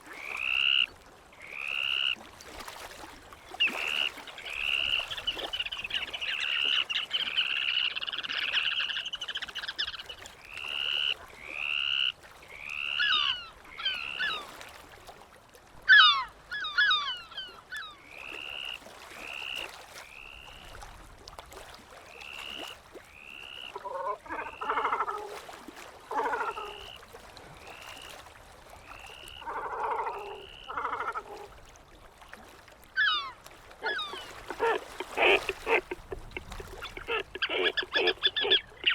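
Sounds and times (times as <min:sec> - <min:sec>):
seabirds calling: 0:03.5 - 0:14.6, 0:15.8 - 0:19.6, 0:23.2 - 0:25.2, 0:33.0 - 0:38.9
low harsh bird calls: 0:33.0 - 0:38.9.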